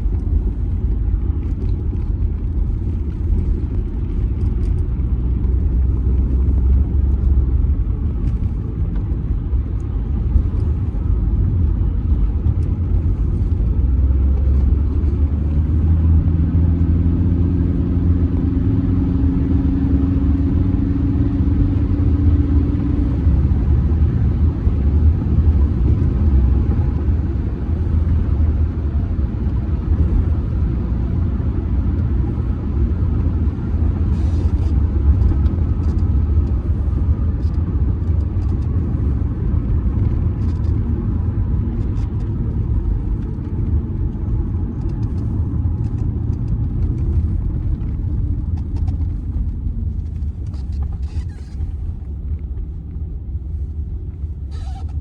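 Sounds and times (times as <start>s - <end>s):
diesel engine drone: 0.0s - 55.0s
road and tyre rumble: 0.0s - 55.0s.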